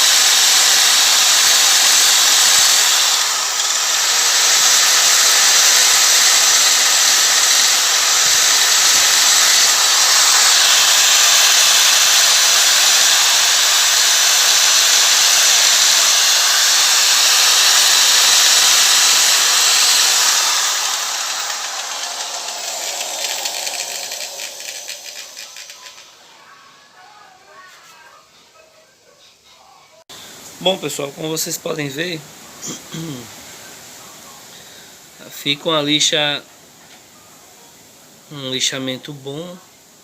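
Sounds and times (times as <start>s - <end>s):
drill sanding metal wheel: 0.0s - 26.2s.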